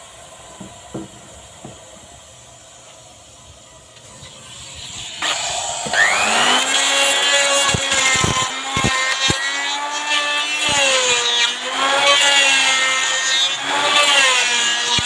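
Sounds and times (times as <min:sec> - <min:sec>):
wood router motor whine: 0:00.0 - 0:15.0
sharp knocks: 0:00.6 - 0:02.0.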